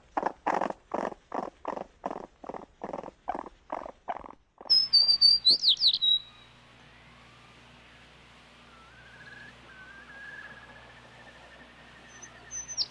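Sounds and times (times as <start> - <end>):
animal rapid repeated calls: 0.0 - 6.3
bird chirps and whistles: 4.7 - 7.1, 8.6 - 12.9.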